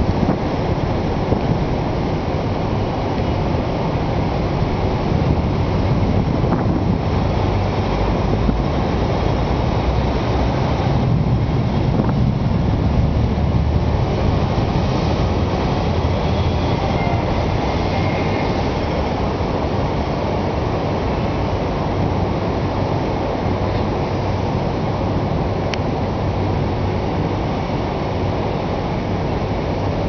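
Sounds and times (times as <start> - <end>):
storm wind buffeting microphone: 0.0 - 30.0.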